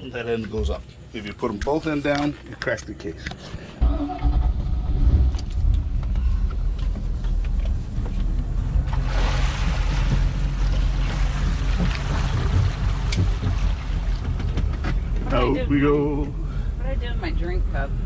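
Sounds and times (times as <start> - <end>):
motorboat engine idling: 5.6 - 17.0.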